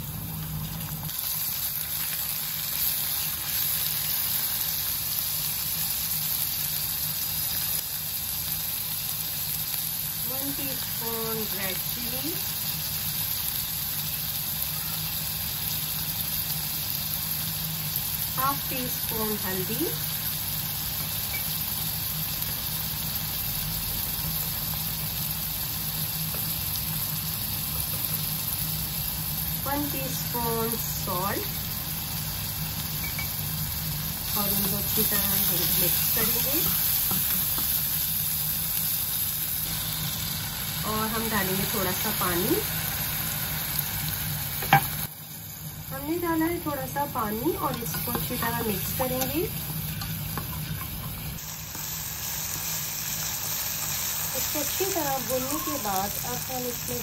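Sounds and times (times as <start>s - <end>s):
onions sizzling in hot oil: 0.0s - 57.0s
steady low hum: 17.4s - 57.0s.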